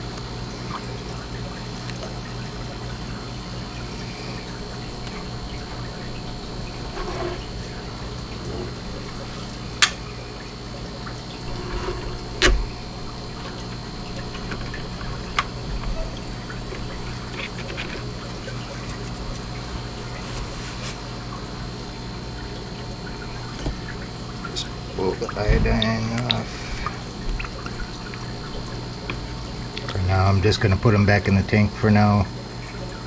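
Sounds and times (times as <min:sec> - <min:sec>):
water splashing and trickling: 0:00.0 - 0:30.4
steady hum: 0:00.0 - 0:33.0.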